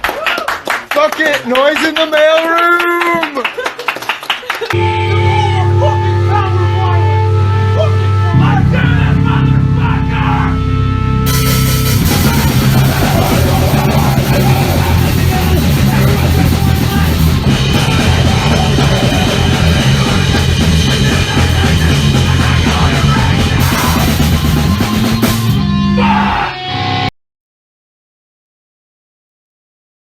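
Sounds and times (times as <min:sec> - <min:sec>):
fast drums and distorted guitar: 0:11.2 - 0:27.1.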